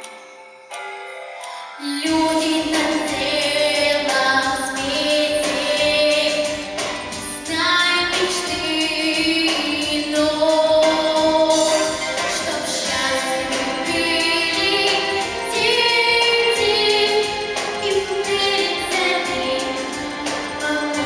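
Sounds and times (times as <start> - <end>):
pop backing track with beat: 0.0 - 21.0
girl singing: 1.8 - 21.0.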